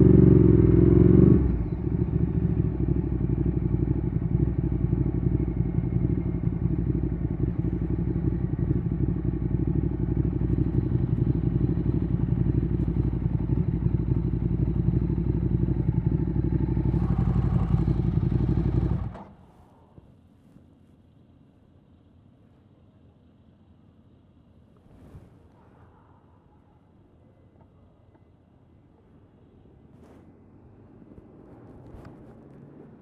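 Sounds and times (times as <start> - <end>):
motorcycle engine idling: 0.0 - 20.1.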